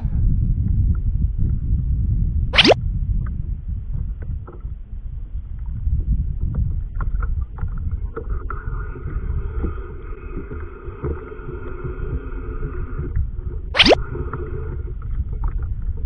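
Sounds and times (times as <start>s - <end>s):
wind buffeting microphone: 0.0s - 16.0s
water moving around kayak: 4.1s - 16.0s.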